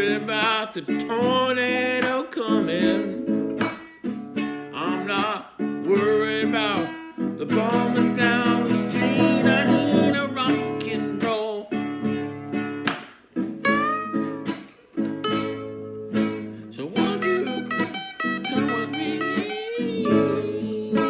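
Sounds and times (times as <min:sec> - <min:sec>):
person singing: 0:00.0 - 0:03.3, 0:04.8 - 0:11.8, 0:16.6 - 0:21.0
acoustic guitar strumming: 0:00.0 - 0:21.0.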